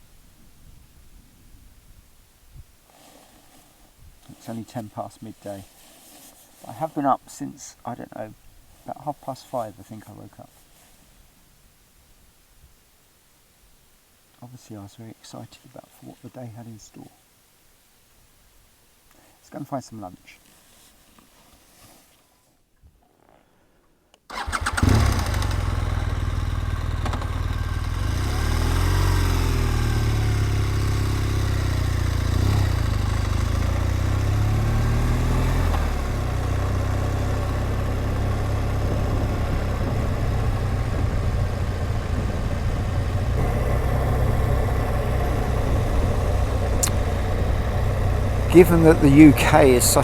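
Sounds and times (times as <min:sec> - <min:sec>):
motorcycle engine starting and running: 0:24.3 - 0:50.0.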